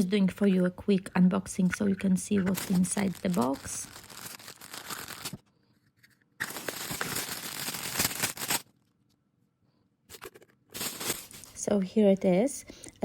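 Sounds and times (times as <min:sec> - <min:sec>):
packaging crinkling and tearing: 0:02.4 - 0:05.5, 0:06.4 - 0:08.7, 0:10.2 - 0:11.6.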